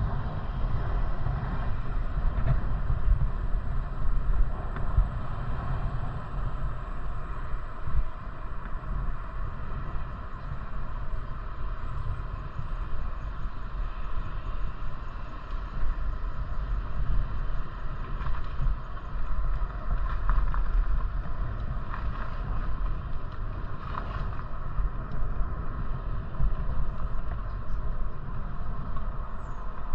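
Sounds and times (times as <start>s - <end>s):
road noise: 0.0s - 29.9s
wind buffeting microphone: 0.0s - 29.9s.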